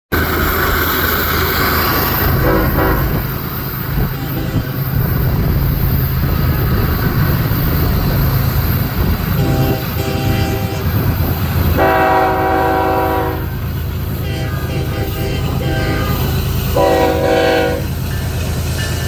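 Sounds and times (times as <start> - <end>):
diesel train rumbling: 0.1 - 19.0
train air horn blast: 2.3 - 3.4, 4.0 - 5.0, 9.3 - 17.9.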